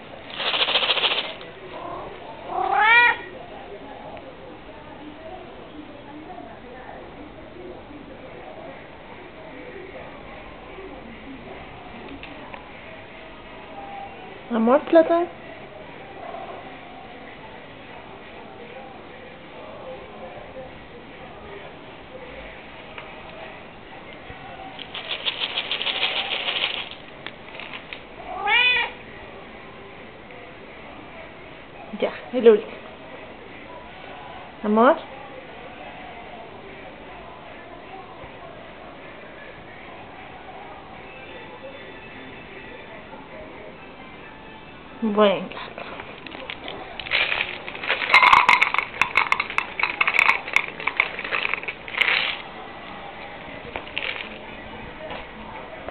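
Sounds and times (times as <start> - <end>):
sharp clicks and crackles: 0.3 - 1.5
cat meowing: 1.8 - 3.3, 28.3 - 29.0.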